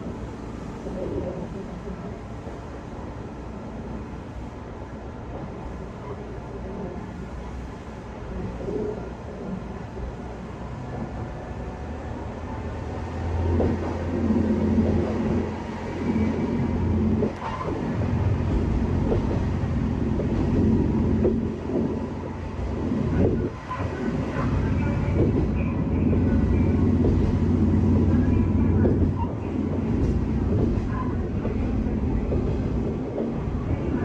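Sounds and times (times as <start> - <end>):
wheel and rail noise: 0.0 - 34.0
diesel engine drone: 11.9 - 30.5.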